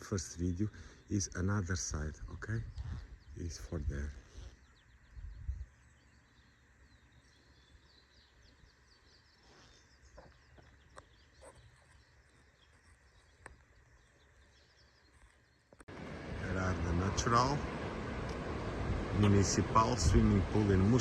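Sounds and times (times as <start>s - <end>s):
faint birds chirping: 0.0s - 21.0s.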